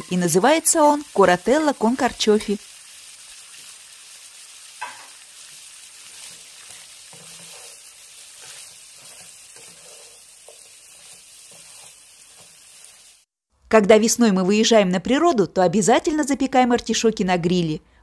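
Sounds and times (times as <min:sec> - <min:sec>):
food sizzling in hot oil: 0:00.0 - 0:13.3
wooden spoon scraping a pan: 0:04.8 - 0:13.0.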